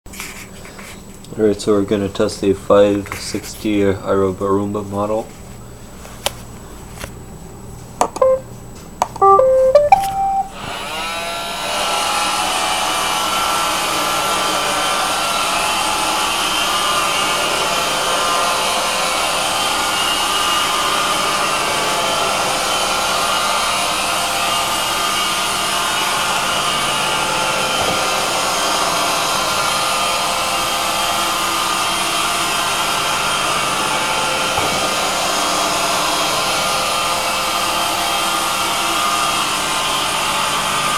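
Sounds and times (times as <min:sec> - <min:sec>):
beeping tune: 0:08.1 - 0:08.4, 0:09.2 - 0:10.6.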